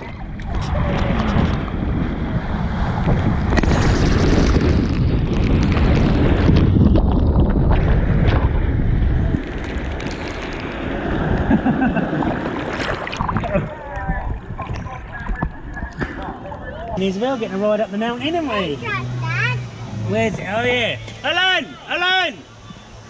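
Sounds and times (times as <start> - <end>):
wind buffeting microphone: 0.0 - 17.1
rushing water: 0.0 - 23.0.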